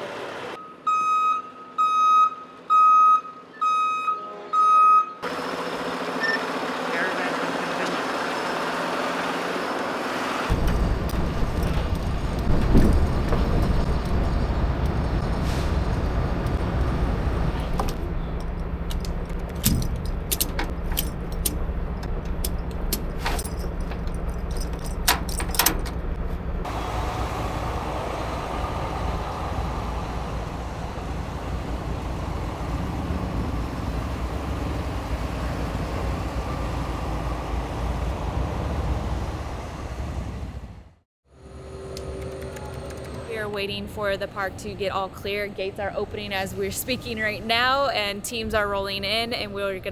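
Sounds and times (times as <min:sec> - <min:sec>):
truck engines rumbling: 0:00.0 - 0:49.9
sharp clicks and rattles: 0:17.8 - 0:26.1.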